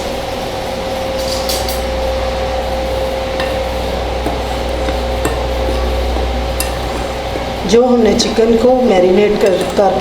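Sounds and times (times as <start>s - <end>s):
electrical hum: 0.0s - 10.0s
spoon scraping flour in bowl: 3.3s - 7.7s.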